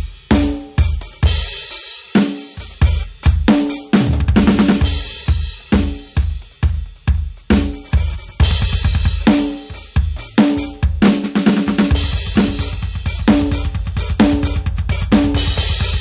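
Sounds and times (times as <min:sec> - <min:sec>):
snare drum beat: 0:10.3 - 0:16.0.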